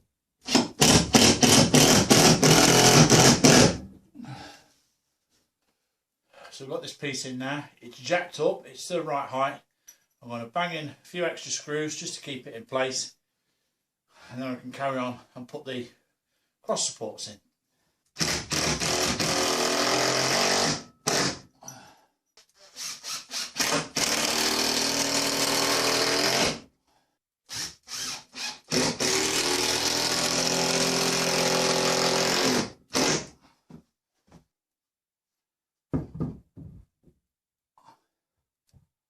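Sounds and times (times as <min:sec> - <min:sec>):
power drill driving screws: 0:00.5 - 0:03.8, 0:18.2 - 0:21.4, 0:22.6 - 0:26.6, 0:27.5 - 0:33.3.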